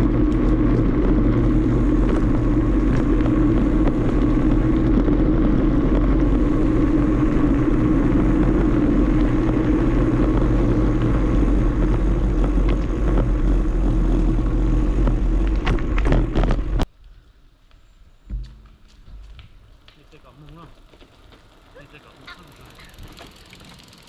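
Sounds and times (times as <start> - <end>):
wind rushing over microphone: 0.0 - 16.9
bicycle tyre rumble: 0.0 - 24.0.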